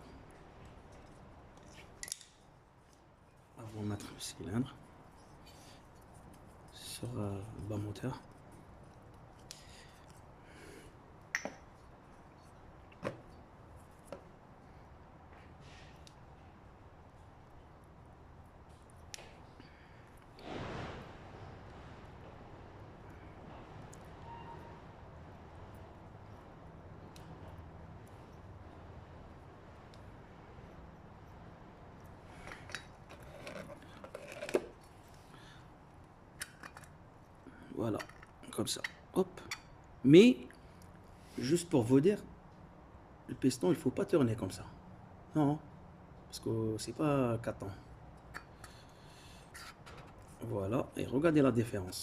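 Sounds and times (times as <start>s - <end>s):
metal parts clinking and scraping: 32.3s - 34.7s, 36.4s - 37.0s.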